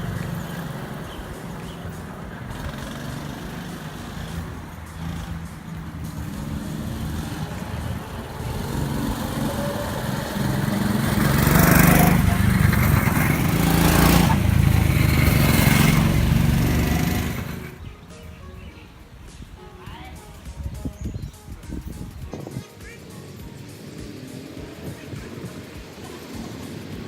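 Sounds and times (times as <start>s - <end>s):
go-kart engine running: 0.0s - 17.8s, 22.8s - 27.0s
rushing noise: 0.0s - 18.2s.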